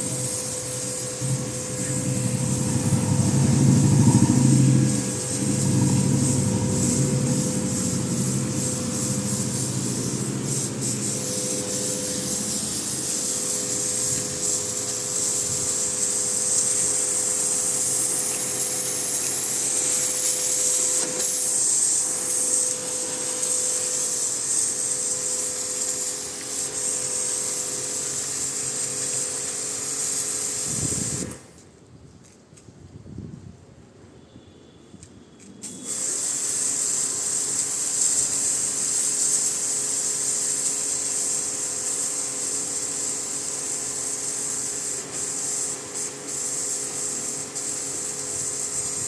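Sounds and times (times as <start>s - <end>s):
pump motor hum: 0.0s - 30.0s
pressure washer water jet hiss: 0.0s - 31.5s, 35.6s - 49.0s.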